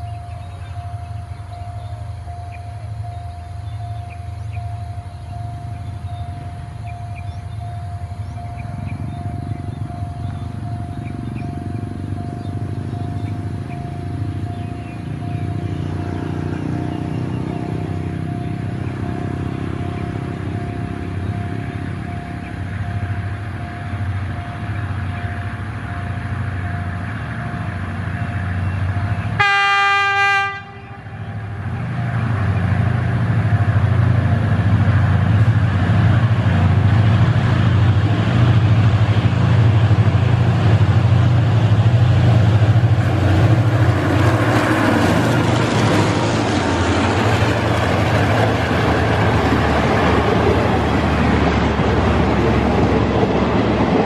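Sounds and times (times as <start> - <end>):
locomotive engine running: 0.0 - 54.0
train horn blast: 29.4 - 31.5
wheels clacking over rail joints: 31.6 - 54.0.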